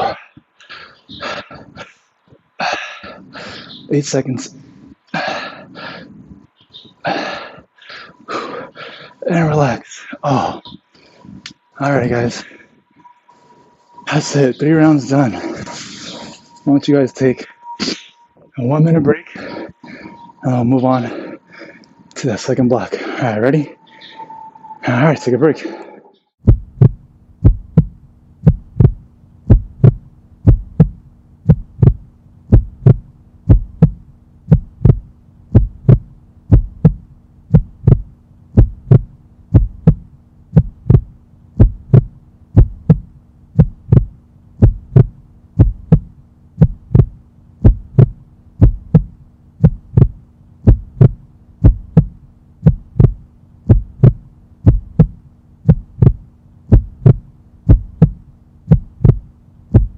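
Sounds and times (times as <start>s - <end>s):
steady low hum: 0.0s - 59.9s
heartbeat sound effect: 26.4s - 59.9s.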